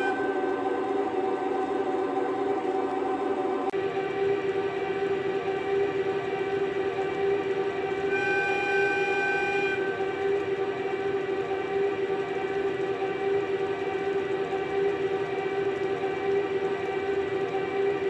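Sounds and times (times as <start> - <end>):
faint rolling noise: 0.0 - 18.0
model train motor whine: 6.4 - 11.2.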